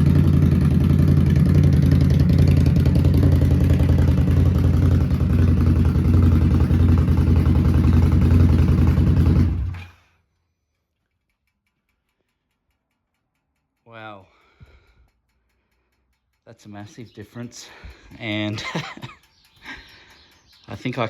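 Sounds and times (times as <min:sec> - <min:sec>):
deep motorcycle exhaust: 0:00.0 - 0:10.0.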